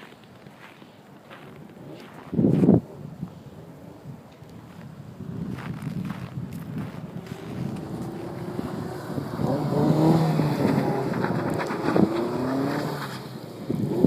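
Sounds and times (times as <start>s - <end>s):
car engine revving: 7.0s - 14.0s.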